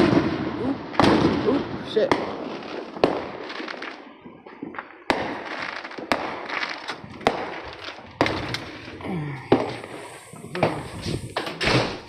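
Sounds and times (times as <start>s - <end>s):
firecracker crackling: 0.0s - 12.0s
fireworks bangs: 0.0s - 12.0s.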